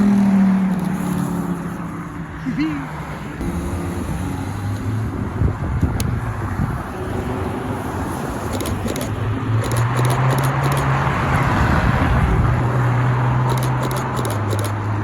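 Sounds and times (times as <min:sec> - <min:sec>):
car engines running at low revs: 0:03.4 - 0:15.0.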